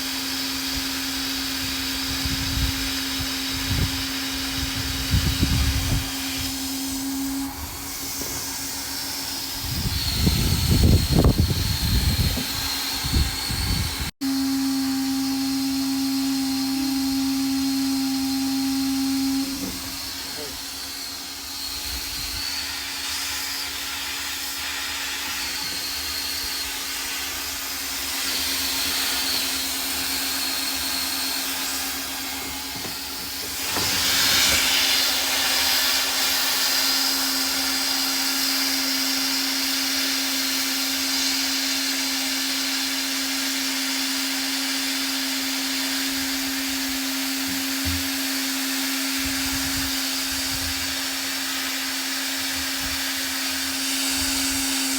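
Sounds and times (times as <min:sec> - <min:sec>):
motor hum: 0:00.0 - 0:22.5, 0:44.9 - 0:54.9
hot-air gun hissing: 0:00.0 - 0:54.9.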